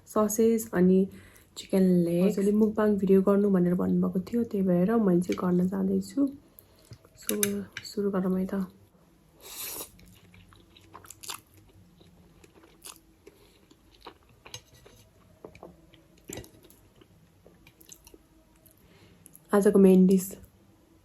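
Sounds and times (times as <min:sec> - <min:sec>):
person chewing crunchy food: 0:09.4 - 0:19.4.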